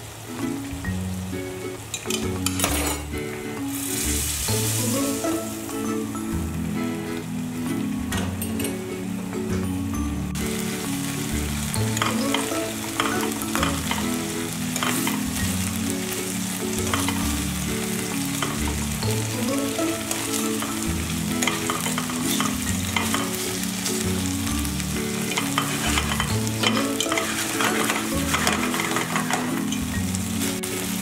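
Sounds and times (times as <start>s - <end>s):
soft background music: 0.0s - 31.0s
meat sizzling in oil: 0.4s - 7.6s, 10.4s - 31.0s
metal tongs clicking on a pan: 1.9s - 3.0s, 12.0s - 14.1s, 14.8s - 15.3s, 16.8s - 17.2s, 18.4s - 18.6s, 21.4s - 23.4s, 25.2s - 29.9s.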